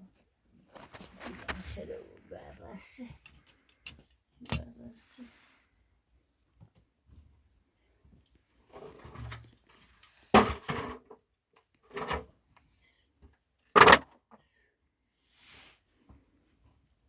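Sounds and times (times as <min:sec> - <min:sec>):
soft rustling: 0:00.2 - 0:03.8.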